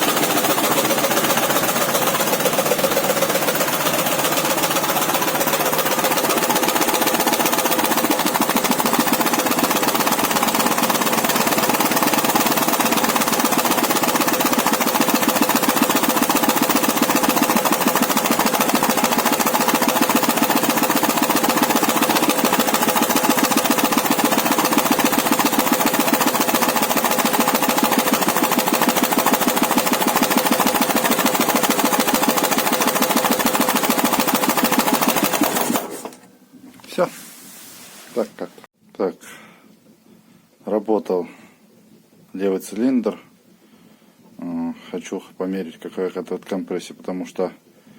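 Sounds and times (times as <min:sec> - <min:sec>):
engine knock: 0:00.0 - 0:36.0
motorcycle engine running: 0:00.0 - 0:36.1.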